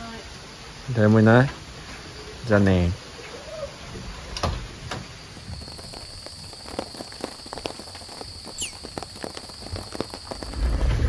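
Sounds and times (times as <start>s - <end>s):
heavy rain falling: 5.2s - 11.0s.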